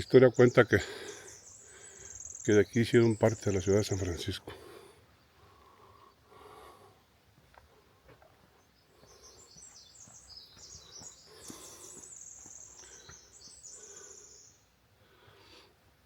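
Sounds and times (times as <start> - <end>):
small songbird singing: 0.0 - 4.5, 8.5 - 14.8.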